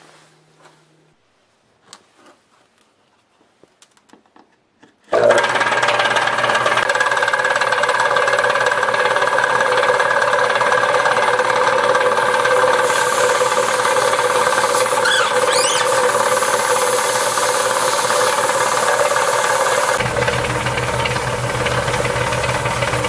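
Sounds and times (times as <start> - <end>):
air compressor knocking: 9.3 - 23.0
short rising squeak: 15.0 - 16.2.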